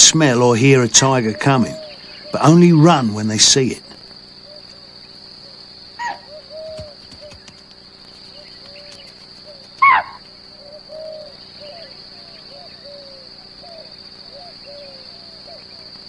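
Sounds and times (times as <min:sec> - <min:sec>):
deer alarm calls: 0:00.0 - 0:03.9, 0:06.0 - 0:07.5, 0:09.8 - 0:10.3
insect drone: 0:00.0 - 0:16.0.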